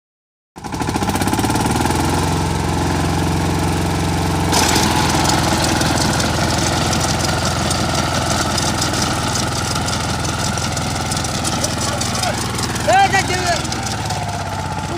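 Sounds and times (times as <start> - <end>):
tractor engine running: 0.6 - 14.9
harsh clatter: 4.5 - 14.9.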